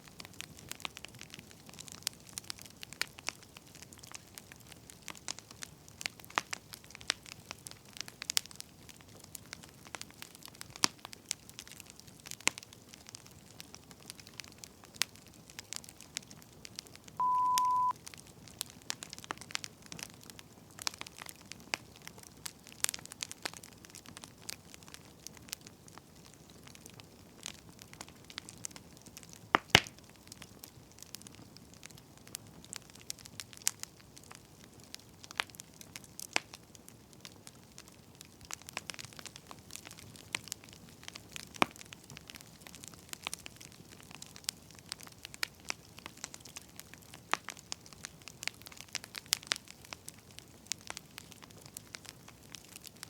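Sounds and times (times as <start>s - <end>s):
wood fire crackling: 0.0s - 53.0s
short high electronic beep: 17.2s - 17.9s.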